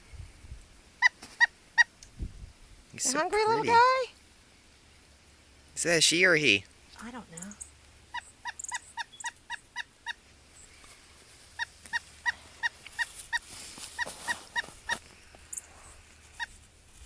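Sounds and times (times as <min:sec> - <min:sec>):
woodpecker calling: 0:06.6 - 0:10.9, 0:11.5 - 0:15.7.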